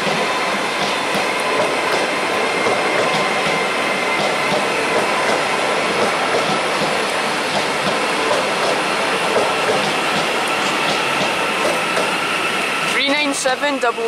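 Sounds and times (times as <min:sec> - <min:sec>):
train wheel and rail noise: 0:00.0 - 0:14.0.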